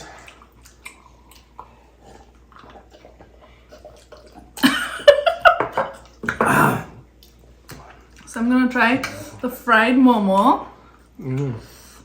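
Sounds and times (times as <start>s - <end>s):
wet slurping and chewing: 0.0s - 4.6s.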